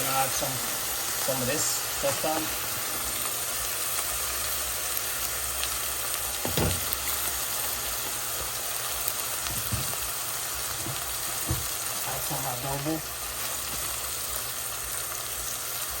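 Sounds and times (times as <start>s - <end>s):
vegetables sizzling in oil: 0.0s - 16.0s
dull knock: 10.8s - 11.7s.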